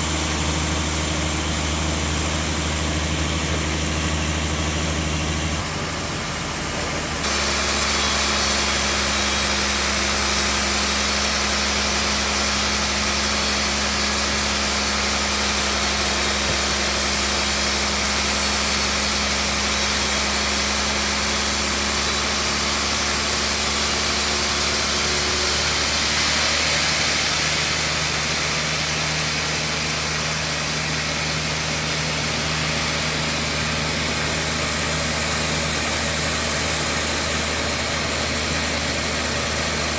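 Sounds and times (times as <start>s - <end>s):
bandsaw running: 0.0s - 39.9s.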